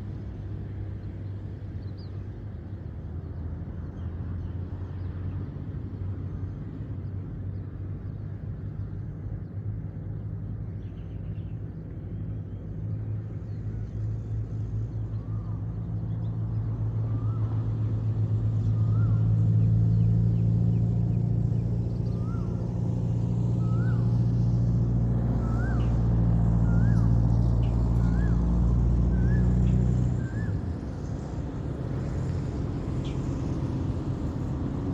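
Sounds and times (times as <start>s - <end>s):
vehicle engine humming: 13.6s - 34.9s.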